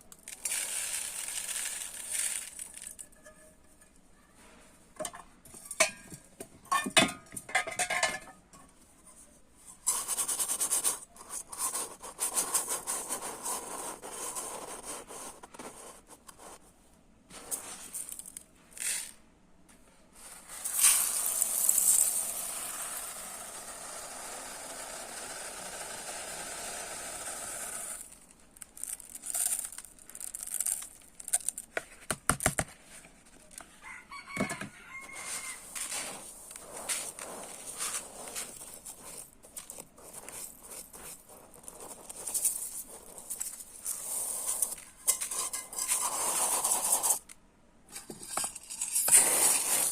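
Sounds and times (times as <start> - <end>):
rice grains pouring: 0.0 - 3.2, 20.3 - 31.7, 34.6 - 47.2, 49.0 - 49.9
rice grains being scooped: 0.0 - 3.9, 9.8 - 16.6, 17.3 - 19.2, 20.1 - 31.9, 33.3 - 47.3, 48.6 - 49.9.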